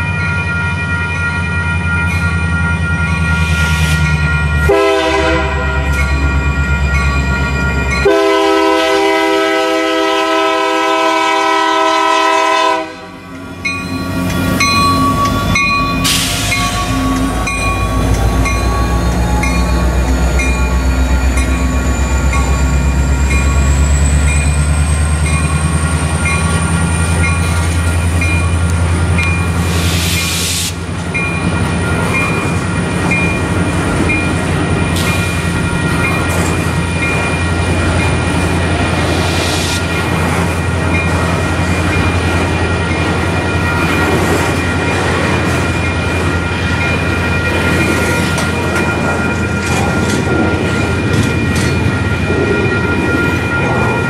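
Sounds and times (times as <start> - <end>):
crossing bell dinging: 0.0 - 54.0
diesel locomotives rumbling: 0.0 - 54.0
train air horn blasts: 4.7 - 5.9, 8.0 - 13.3, 16.0 - 20.4.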